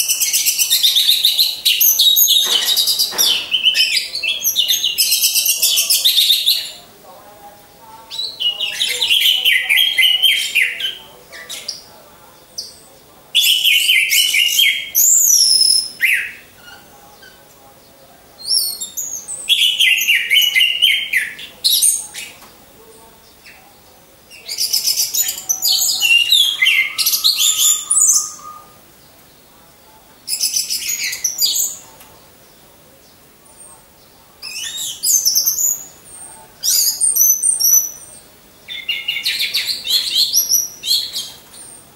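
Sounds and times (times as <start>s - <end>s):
thrush singing whistled phrases: 24.3s - 28.9s.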